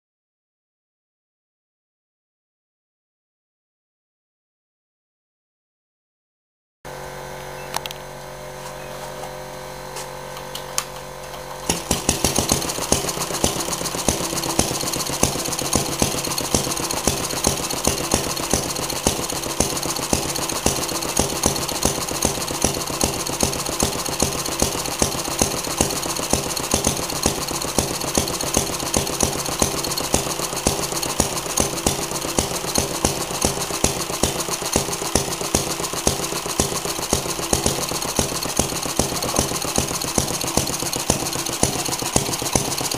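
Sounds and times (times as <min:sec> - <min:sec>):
gas engine running: 0:11.2 - 0:42.9.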